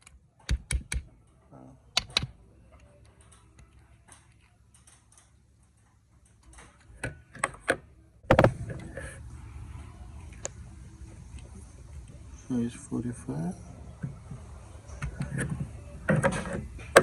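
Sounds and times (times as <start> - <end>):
metal parts and tools clicking: 0.0 - 8.5
low steady background noise: 0.0 - 17.0
sharp knock: 8.3 - 8.6.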